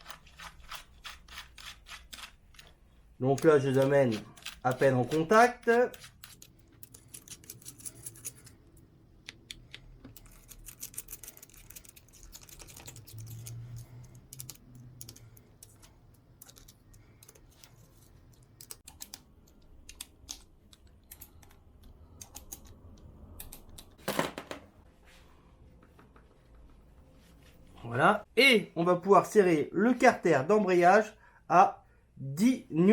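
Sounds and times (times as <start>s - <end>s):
hand tools clicking and scraping: 0.0s - 22.8s.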